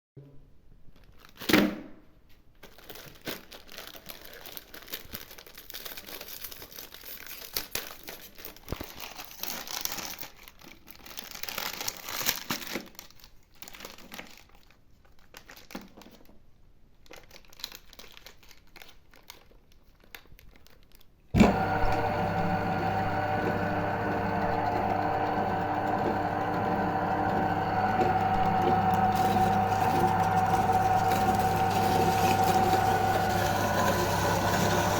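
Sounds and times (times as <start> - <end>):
packaging crinkling: 0.9 - 21.3, 26.9 - 34.9
meat grinder motor humming: 21.4 - 34.9.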